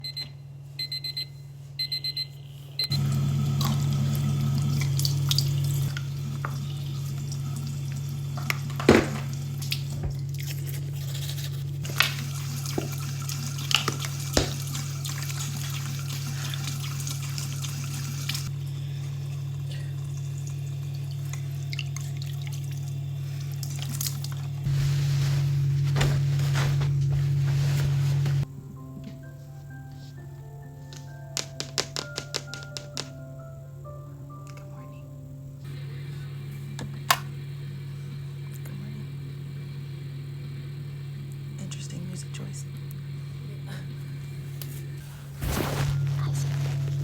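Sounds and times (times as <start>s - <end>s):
alarm clock beeping: 0.0s - 3.0s
steady low hum: 2.4s - 30.8s, 33.2s - 47.0s
running water: 2.9s - 26.8s.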